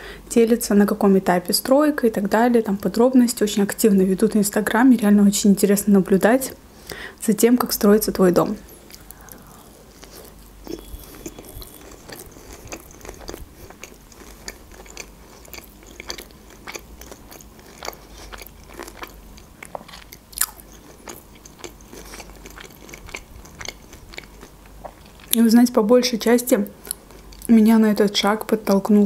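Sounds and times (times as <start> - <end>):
person chewing: 8.7 - 25.4, 26.8 - 27.5.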